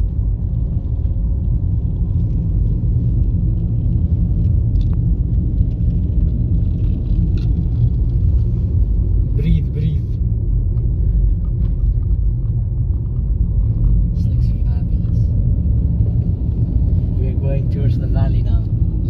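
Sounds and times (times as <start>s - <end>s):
car driving on road: 0.0s - 19.0s.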